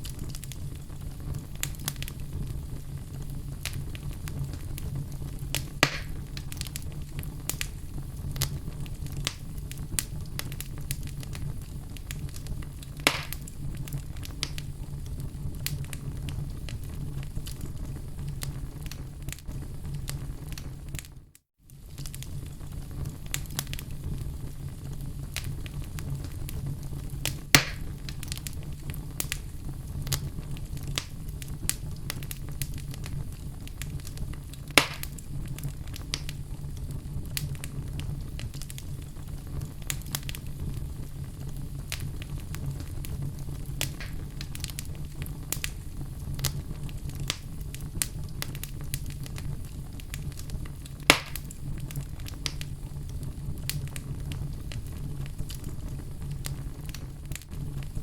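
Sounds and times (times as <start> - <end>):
fireplace fire crackling: 0.0 - 58.0
loud fire pops: 0.0 - 58.0.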